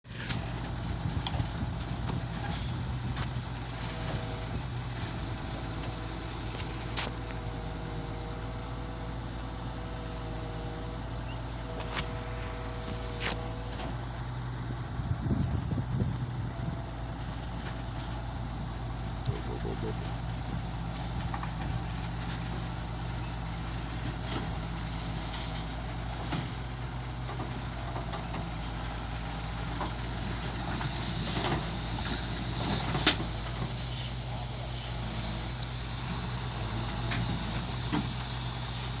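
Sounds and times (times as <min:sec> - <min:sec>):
excavator diesel engine running: 0:00.0 - 0:39.0
high hiss and clatter: 0:27.3 - 0:39.0.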